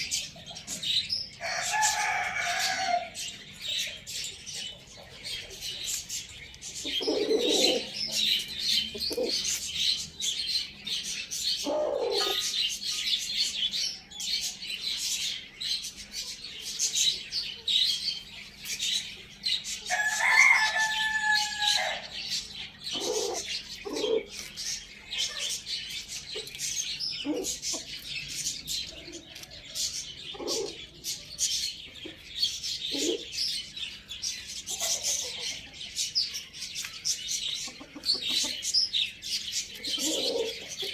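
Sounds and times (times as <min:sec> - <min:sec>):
chicks chirping: 0:00.0 - 0:40.9
rooster crowing: 0:01.4 - 0:03.2, 0:19.9 - 0:22.2
hens clucking: 0:37.6 - 0:38.8, 0:39.7 - 0:40.9.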